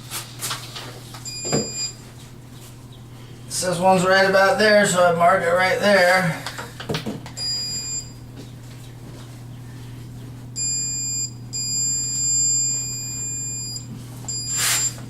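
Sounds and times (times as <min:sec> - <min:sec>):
steady low hum: 0:00.0 - 0:15.0
stud finder beeping: 0:01.2 - 0:02.0, 0:07.4 - 0:08.3, 0:10.6 - 0:15.0.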